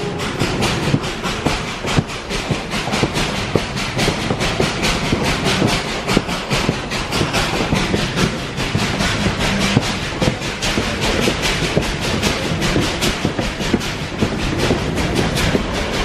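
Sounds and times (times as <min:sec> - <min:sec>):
rushing rumble of train: 0:00.0 - 0:16.0
train wheels clattering on rails: 0:00.0 - 0:16.0.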